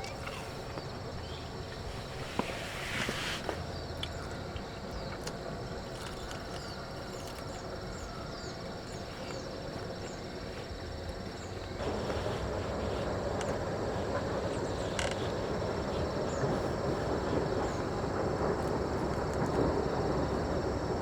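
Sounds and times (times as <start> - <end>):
high insect drone: 0.0 - 21.0
hiss: 1.8 - 3.7.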